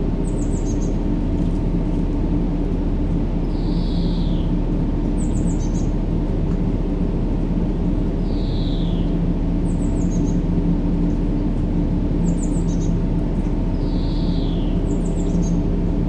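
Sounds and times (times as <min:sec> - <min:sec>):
low white-noise rumble: 0:00.0 - 0:16.0
faint hum: 0:13.8 - 0:16.0.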